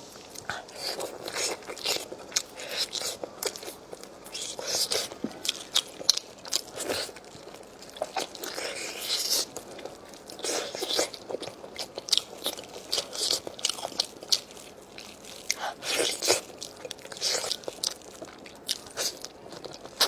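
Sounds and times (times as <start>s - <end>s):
person chewing crunchy food: 0.0s - 20.0s.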